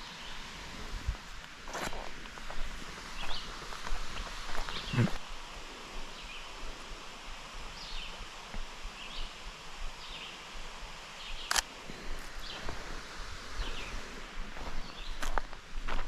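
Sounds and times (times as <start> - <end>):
low outdoor background: 0.0 - 16.0
sharp click: 11.5 - 11.7.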